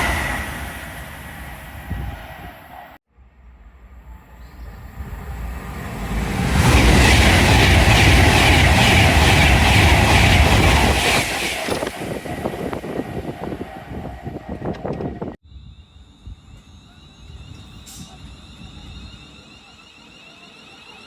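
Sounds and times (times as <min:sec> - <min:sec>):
train wheels rushing on rail: 0:00.0 - 0:03.0, 0:03.9 - 0:15.4.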